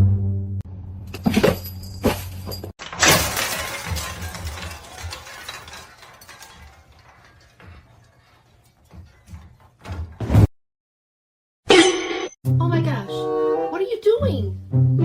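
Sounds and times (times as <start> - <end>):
crash of something shattering: 1.2 - 7.6
background music: 12.4 - 15.0.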